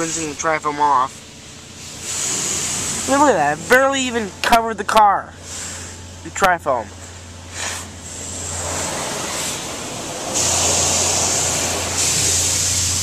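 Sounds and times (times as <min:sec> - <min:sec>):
low hum: 0:00.0 - 0:13.0
water spray hissing on car: 0:01.1 - 0:04.2, 0:07.5 - 0:13.0.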